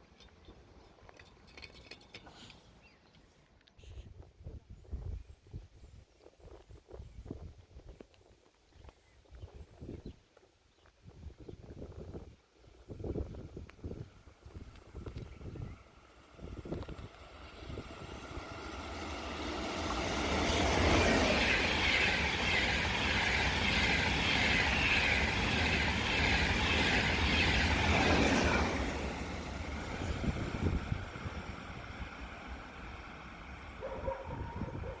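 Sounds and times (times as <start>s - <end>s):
train passing: 13.1s - 35.0s.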